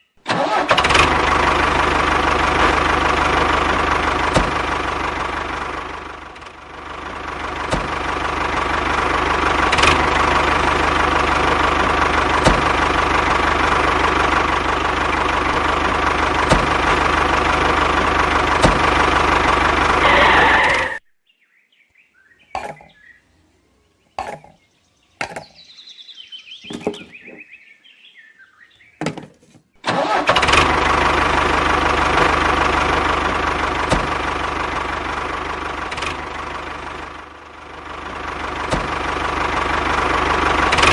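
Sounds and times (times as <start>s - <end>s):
motor running: 0.3s - 21.0s, 30.0s - 40.9s.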